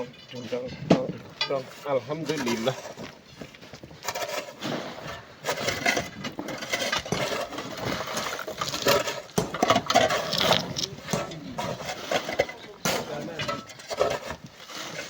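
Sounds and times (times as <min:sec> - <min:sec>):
loose stones tumbling: 0:00.0 - 0:15.0
rocks clattering from digging: 0:04.0 - 0:15.0.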